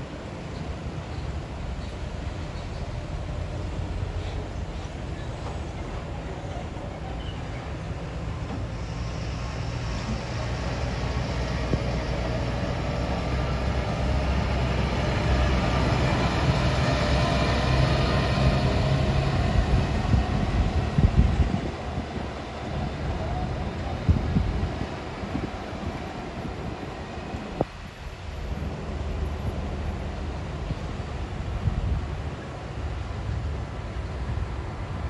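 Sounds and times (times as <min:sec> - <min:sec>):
heavy truck engine labouring: 0:08.1 - 0:24.7.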